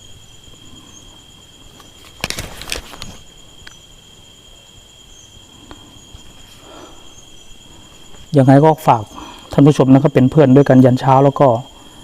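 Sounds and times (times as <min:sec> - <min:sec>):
night insects trilling: 0:00.0 - 0:12.0
rustling clicks: 0:01.8 - 0:03.8.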